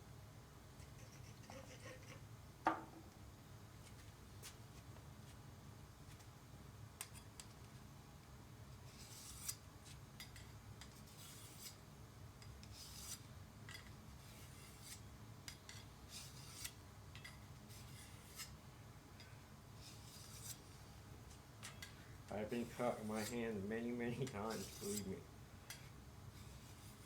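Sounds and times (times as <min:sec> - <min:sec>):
knife rasping on sharpening plate: 0:24.2 - 0:27.0.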